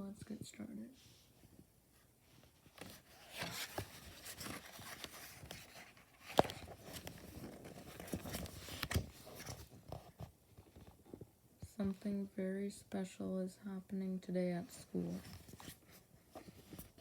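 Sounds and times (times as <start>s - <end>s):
paper rustling and scraping: 2.4s - 10.9s
book pages turning: 2.4s - 11.2s, 14.9s - 17.0s.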